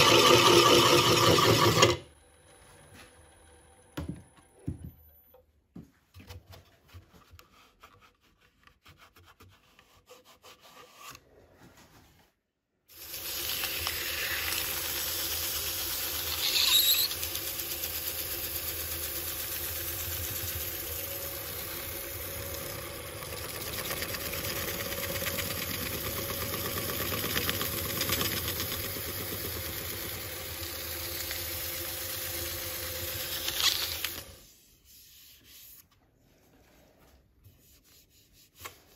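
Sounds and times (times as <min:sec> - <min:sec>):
wood lathe humming: 0:00.0 - 0:02.1, 0:13.0 - 0:34.3
brief squeal: 0:16.3 - 0:17.2.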